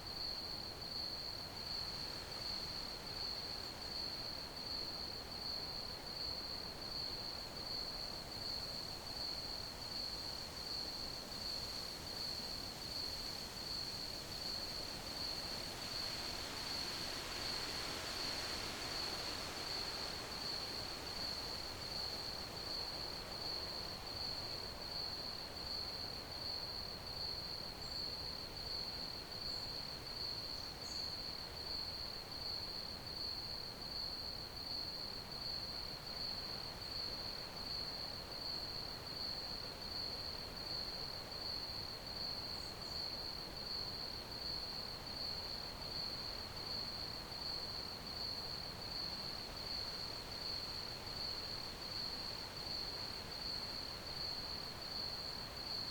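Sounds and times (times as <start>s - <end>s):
crickets chirping: 5.4s - 55.9s.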